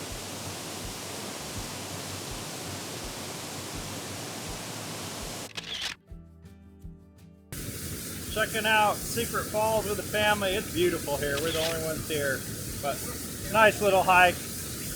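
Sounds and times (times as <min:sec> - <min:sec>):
faint hum: 0:00.0 - 0:05.5
waterfall rushing: 0:00.0 - 0:05.5, 0:07.6 - 0:14.9.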